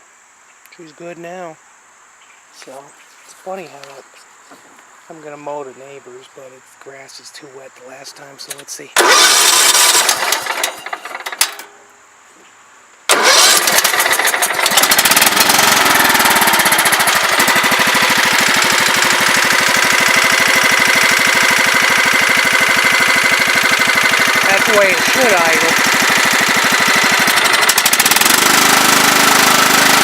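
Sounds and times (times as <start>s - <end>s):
tractor engine starting and idling: 8.2s - 11.8s, 13.1s - 30.0s.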